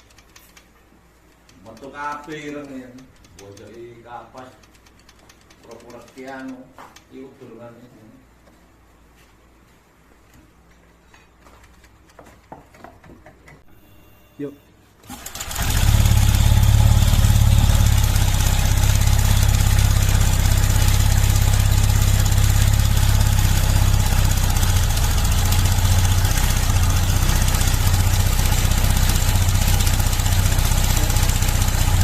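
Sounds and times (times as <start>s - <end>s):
rattling tick from engine: 15.1s - 32.0s
scooter engine idling: 15.1s - 32.0s.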